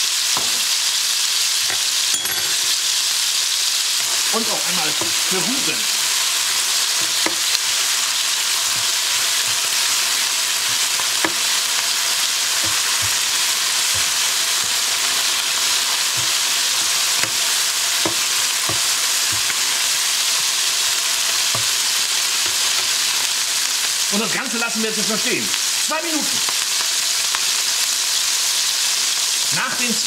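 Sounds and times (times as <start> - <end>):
chicken sizzling in hot oil: 0.0 - 30.0
spatula scraping and tapping wok: 6.1 - 23.2.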